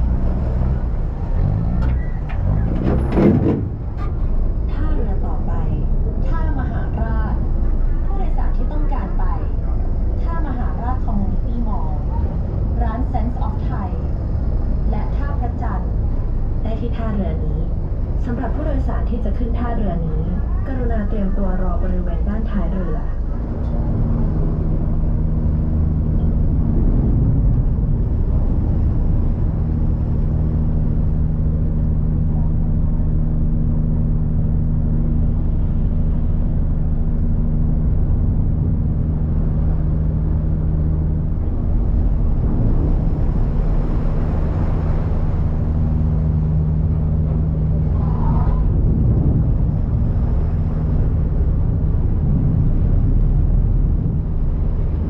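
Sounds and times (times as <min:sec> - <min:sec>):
ferry engine droning: 0:00.0 - 0:55.0
wind: 0:00.0 - 0:55.0
water rushing: 0:21.5 - 0:55.0.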